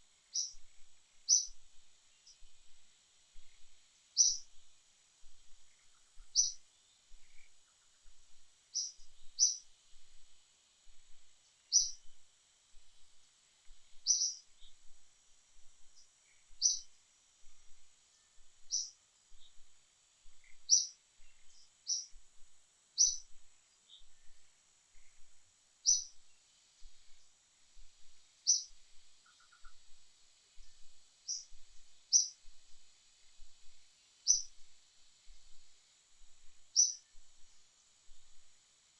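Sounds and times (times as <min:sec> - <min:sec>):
faint high hiss: 0:00.0 - 0:38.9
bird chirping: 0:00.3 - 0:02.5, 0:03.4 - 0:04.5, 0:05.5 - 0:08.1, 0:08.7 - 0:09.7, 0:11.7 - 0:12.1, 0:13.9 - 0:14.9, 0:15.9 - 0:16.9, 0:18.1 - 0:19.6, 0:20.3 - 0:22.2, 0:23.0 - 0:27.3, 0:28.4 - 0:30.0, 0:30.6 - 0:32.6, 0:34.2 - 0:34.7, 0:36.7 - 0:37.2.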